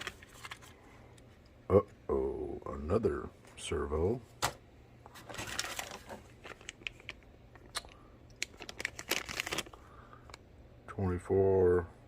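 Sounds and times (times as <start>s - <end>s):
plastic packaging crinkling: 0.0s - 0.8s, 5.1s - 10.4s.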